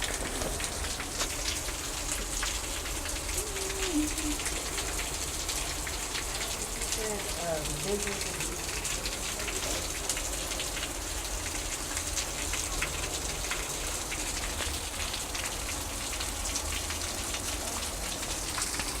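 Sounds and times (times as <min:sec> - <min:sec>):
heavy rain: 0:00.0 - 0:19.0.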